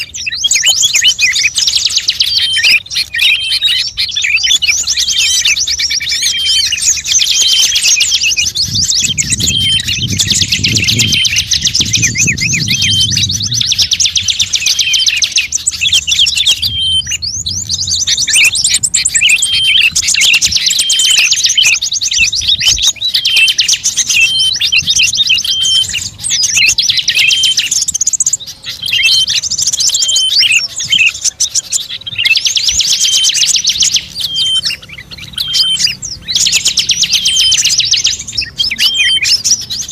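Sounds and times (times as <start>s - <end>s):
songbird chirping trills: 0.0s - 39.9s
low rumble: 8.6s - 14.4s, 16.6s - 19.2s.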